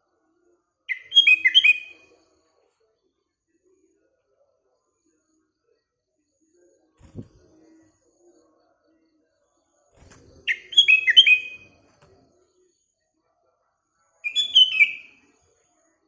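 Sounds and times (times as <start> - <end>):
bird singing whistled notes: 0.9 - 2.0, 10.5 - 11.8, 14.2 - 15.3.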